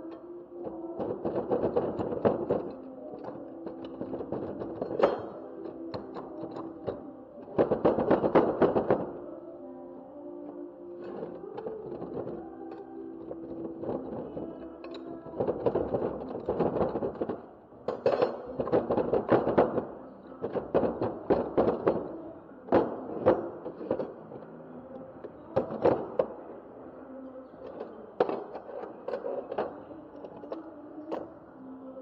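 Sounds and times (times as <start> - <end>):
metal parts and tools clanking: 0.1 - 7.0, 11.0 - 19.8, 27.5 - 31.3.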